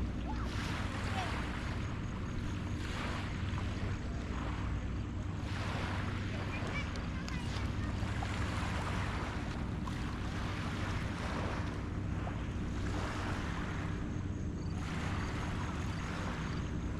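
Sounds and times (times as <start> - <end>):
steady low hum: 0.0 - 16.9
waves washing onto beach: 0.0 - 16.9.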